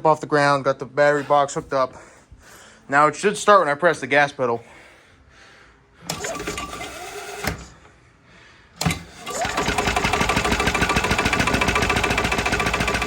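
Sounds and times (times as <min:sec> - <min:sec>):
engine cranking: 0:06.1 - 0:07.7, 0:08.8 - 0:13.0.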